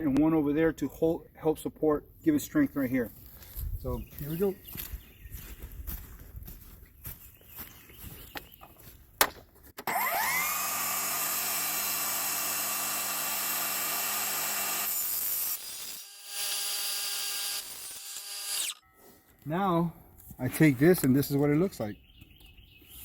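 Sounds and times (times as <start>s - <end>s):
table saw ripping wood: 9.8s - 18.8s.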